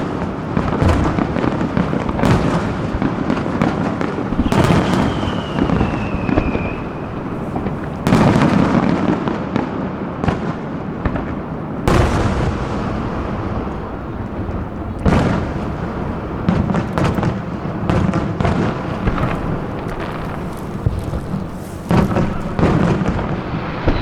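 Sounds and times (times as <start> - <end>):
fireworks crackling: 0.0 - 24.0
falling firework whistle: 3.8 - 9.2, 18.2 - 24.0.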